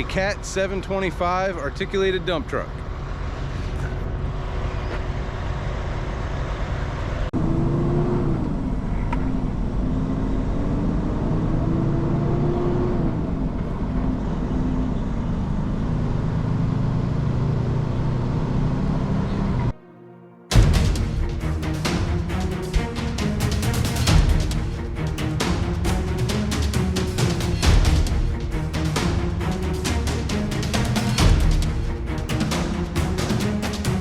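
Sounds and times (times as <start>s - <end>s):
heavy diesel engine running: 20.5s - 34.0s.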